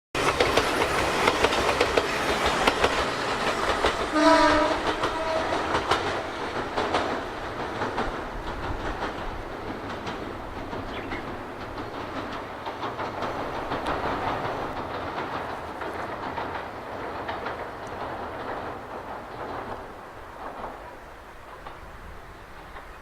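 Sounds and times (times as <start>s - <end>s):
train wheels clattering: 0.2s - 23.0s
train horn: 4.0s - 6.2s.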